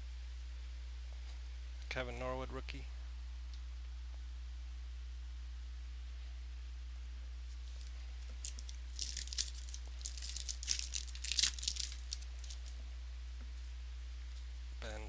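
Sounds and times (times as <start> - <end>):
low electrical hum: 0.0 - 15.0
foil wrapper crinkling and tearing: 7.6 - 12.8.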